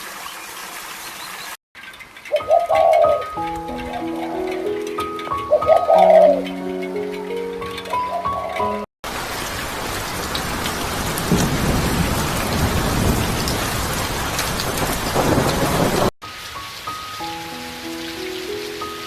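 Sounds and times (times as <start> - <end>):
soft music: 2.2 - 8.9, 16.2 - 19.0
heavy rain pouring: 6.3 - 19.0
thunder rumbling: 8.6 - 16.1.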